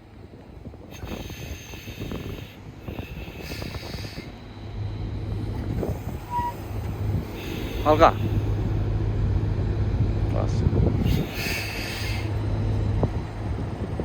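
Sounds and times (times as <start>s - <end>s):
truck engine rumbling: 0.0s - 14.0s
hiss: 0.9s - 4.4s, 5.7s - 8.6s, 11.0s - 12.4s.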